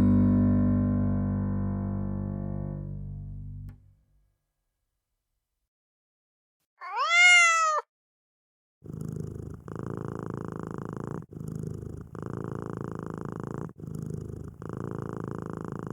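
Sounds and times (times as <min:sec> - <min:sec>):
cat meowing: 0:06.8 - 0:07.9
cat purring: 0:08.8 - 0:15.9.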